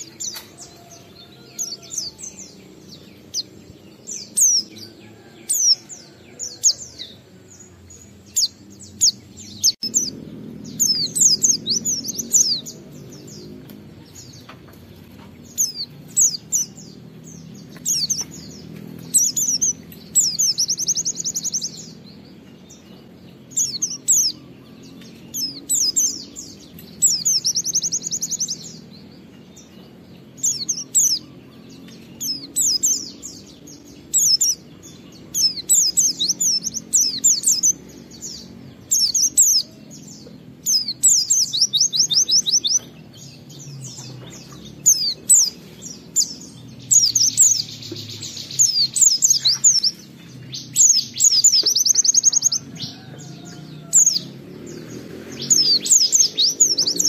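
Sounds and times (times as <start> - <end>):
bird chirps and trills: 0.0 - 57.0.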